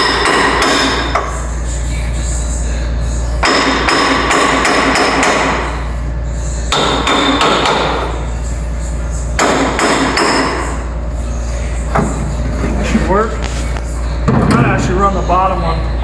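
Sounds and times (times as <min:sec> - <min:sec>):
hammering on steel: 0:00.0 - 0:01.3, 0:03.4 - 0:05.7, 0:06.7 - 0:08.2, 0:09.4 - 0:10.8.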